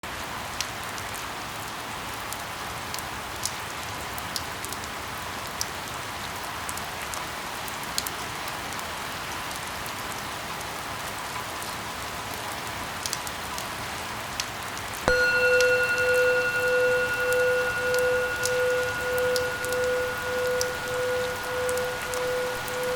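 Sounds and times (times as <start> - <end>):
steady rain: 0.1 - 15.0
loud steady tone: 15.1 - 22.9.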